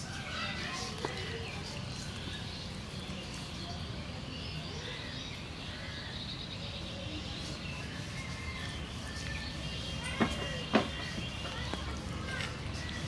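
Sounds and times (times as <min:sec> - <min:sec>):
small birds chirping faintly: 0:00.0 - 0:13.0.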